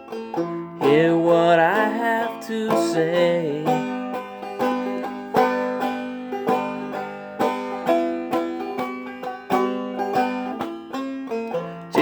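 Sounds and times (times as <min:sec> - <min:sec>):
banjo playing: 0:00.0 - 0:12.0.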